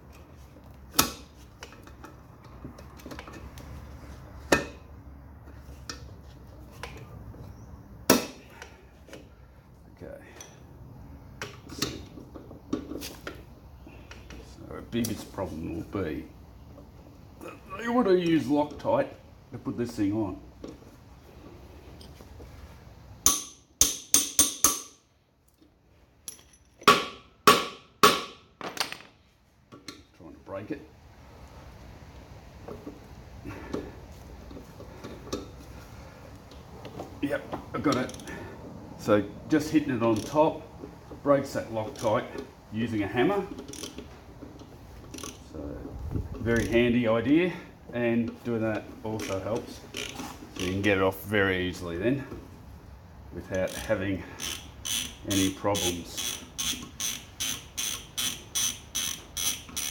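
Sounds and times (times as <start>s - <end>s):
hammer striking metal bolt: 23.2s - 25.0s, 26.8s - 29.1s.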